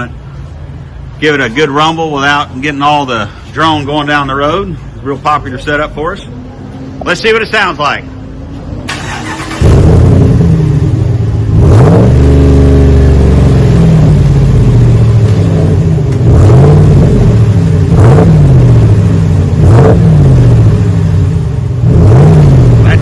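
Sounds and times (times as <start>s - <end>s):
pickup truck engine revving: 8.8s - 23.0s.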